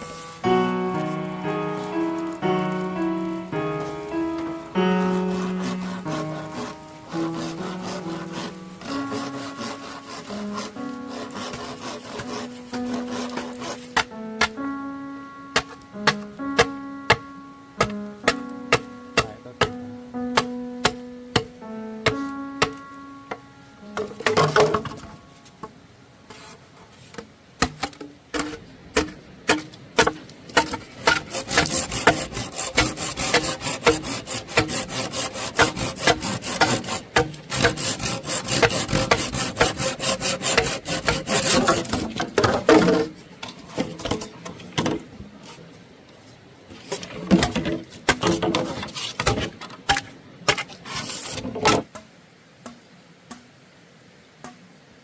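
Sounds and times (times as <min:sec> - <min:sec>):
rough scraping strokes: 0:00.0 - 0:14.6, 0:26.2 - 0:51.9.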